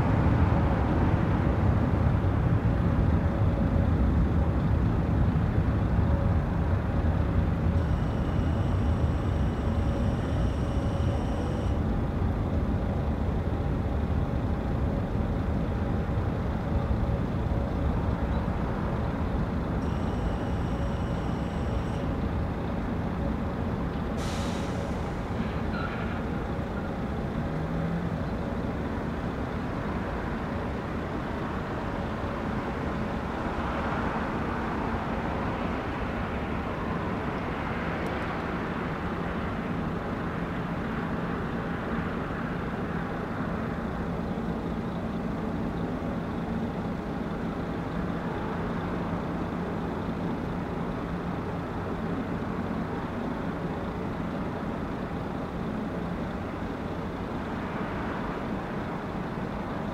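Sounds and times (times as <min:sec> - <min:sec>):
faint steady hum: 0:07.6 - 0:11.9, 0:19.8 - 0:22.2.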